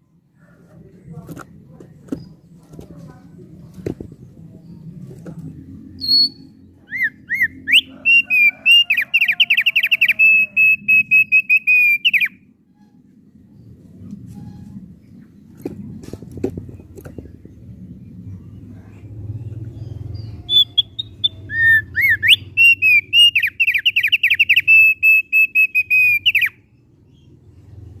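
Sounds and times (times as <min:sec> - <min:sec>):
bird singing whistles and trills: 0:06.0 - 0:12.9, 0:19.8 - 0:26.6
low hum: 0:12.4 - 0:22.6.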